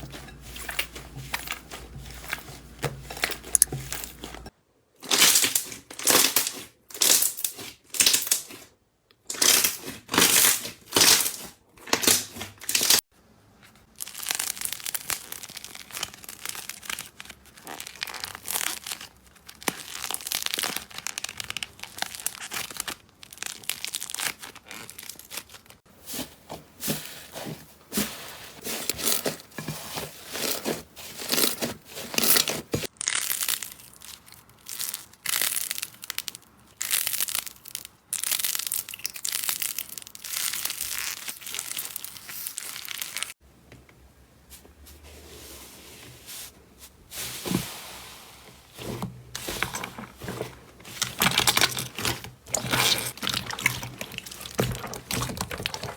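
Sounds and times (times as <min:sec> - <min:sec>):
slime squeezed by hand: 0:51.2 - 0:55.9.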